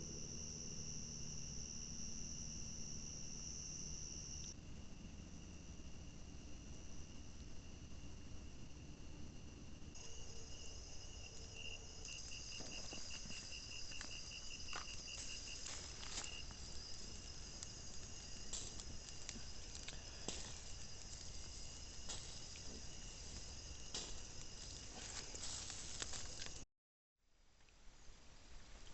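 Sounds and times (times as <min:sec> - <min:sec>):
insect chirping in fast pulses: 0:00.0 - 0:26.6
insects trilling: 0:00.0 - 0:26.6.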